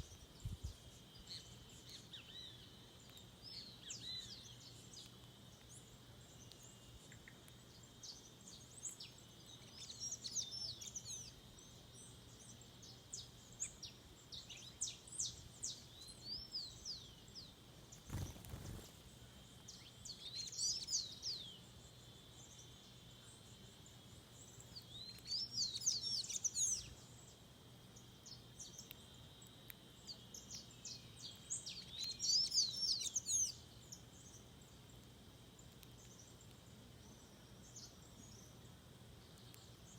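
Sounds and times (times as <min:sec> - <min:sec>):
songbird chirping: 0:00.0 - 0:39.9
faint high buzz: 0:16.6 - 0:31.6.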